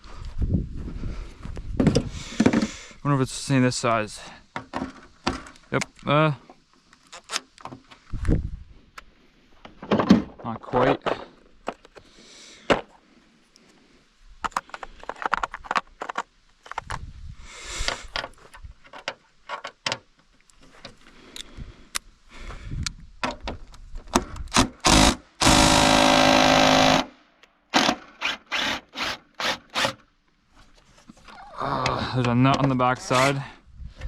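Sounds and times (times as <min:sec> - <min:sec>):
cordless drill spinning: 0:24.8 - 0:27.1, 0:27.8 - 0:30.0.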